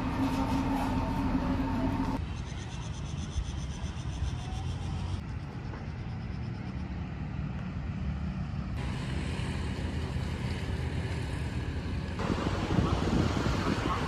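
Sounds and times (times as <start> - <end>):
train rumbling: 0.0 - 2.4, 4.9 - 14.0
wind buffeting microphone: 9.9 - 14.0.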